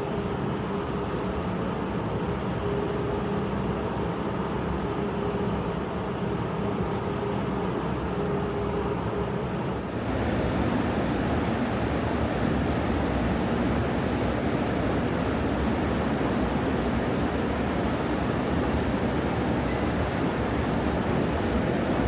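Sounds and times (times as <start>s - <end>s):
underground train running: 9.8s - 22.0s.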